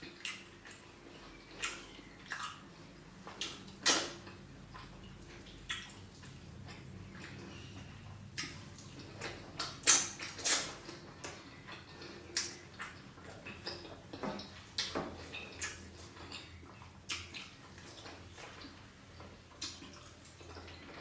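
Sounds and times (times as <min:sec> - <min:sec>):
wet mouth smacks while chewing: 0:01.5 - 0:02.6, 0:03.3 - 0:07.6, 0:08.4 - 0:13.9, 0:14.8 - 0:18.7, 0:19.6 - 0:20.9.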